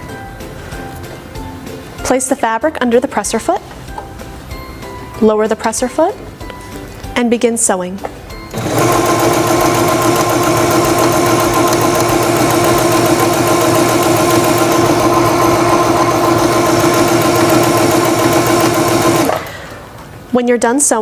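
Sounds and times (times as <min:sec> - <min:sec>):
sewing machine stitching: 0:08.5 - 0:19.8.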